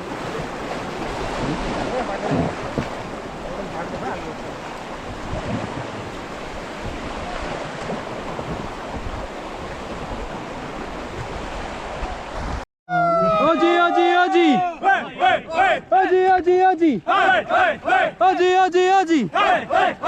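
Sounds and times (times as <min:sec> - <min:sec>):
rushing river water: 0:00.0 - 0:12.6
wind buffeting microphone: 0:00.0 - 0:12.6.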